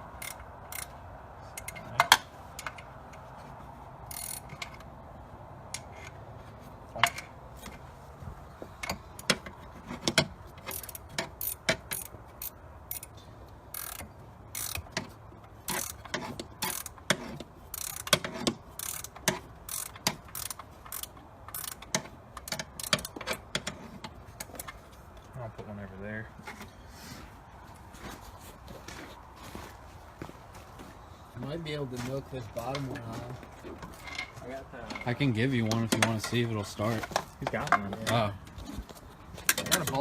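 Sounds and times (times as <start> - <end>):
hand ratchet clicking: 0.2 - 0.9, 4.1 - 4.8, 8.8 - 23.8
metal tools clinking: 32.5 - 38.5.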